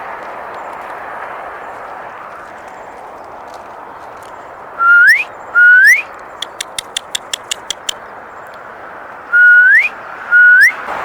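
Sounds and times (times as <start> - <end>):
person whistling: 4.8 - 6.1, 9.3 - 10.8
sharp clicks: 6.2 - 8.6.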